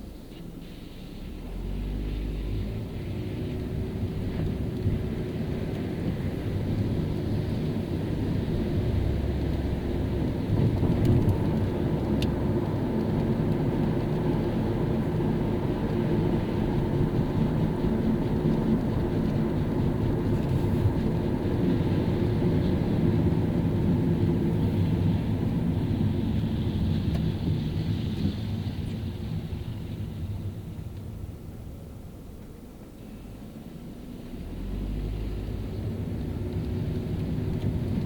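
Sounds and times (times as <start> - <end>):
road and engine rumble: 0.0 - 38.0
tyres hissing on wet road: 0.5 - 10.2, 20.3 - 30.9, 33.0 - 38.0.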